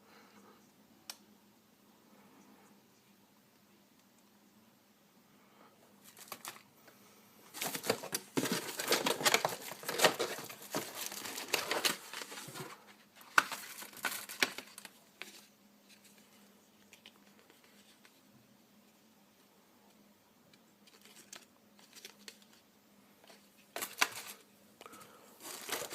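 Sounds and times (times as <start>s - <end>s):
packaging crinkling and tearing: 6.0s - 6.6s, 7.5s - 15.5s, 23.7s - 24.4s, 25.4s - 25.9s.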